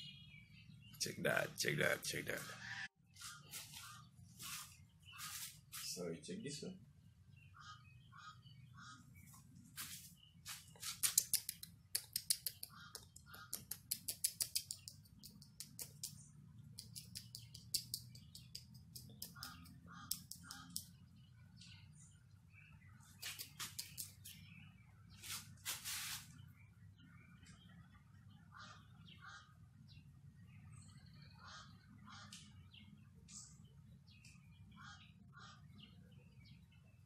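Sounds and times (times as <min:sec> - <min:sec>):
young bird rattling calls: 0:10.8 - 0:16.2, 0:16.8 - 0:20.9, 0:23.2 - 0:24.4
short bird chirps: 0:23.1 - 0:24.6.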